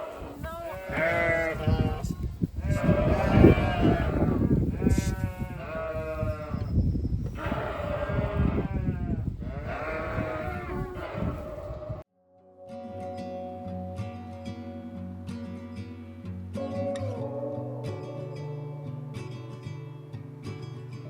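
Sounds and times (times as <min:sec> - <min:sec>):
lamb bleating: 0:00.0 - 0:06.6, 0:07.4 - 0:11.7.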